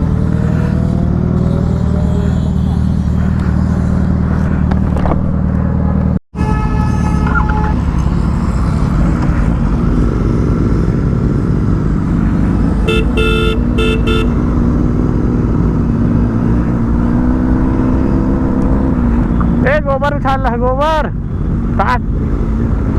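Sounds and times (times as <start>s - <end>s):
vehicle horn toots: 6.4s - 7.9s, 12.8s - 14.5s
motorcycle engine running: 7.9s - 16.0s.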